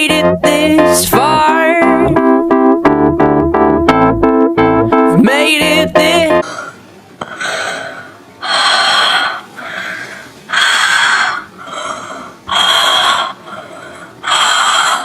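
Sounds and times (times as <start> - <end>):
heavy rhythmic breathing: 6.3 - 15.0.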